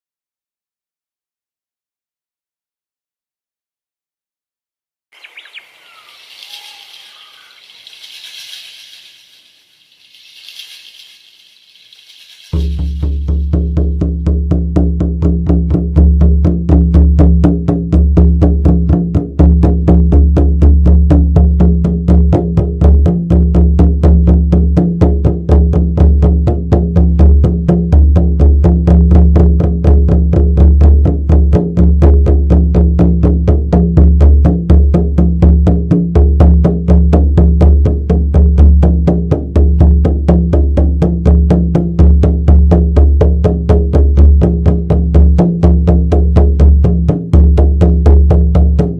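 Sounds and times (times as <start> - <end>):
frame drum beaten rapidly: 12.0 - 48.9.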